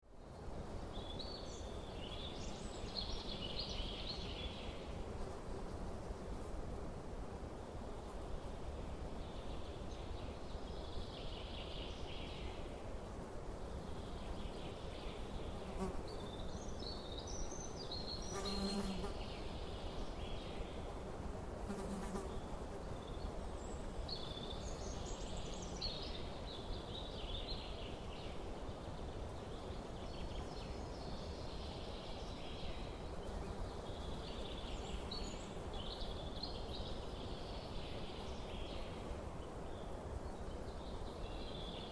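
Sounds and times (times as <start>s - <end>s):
small birds chirping: 21.7s - 41.9s.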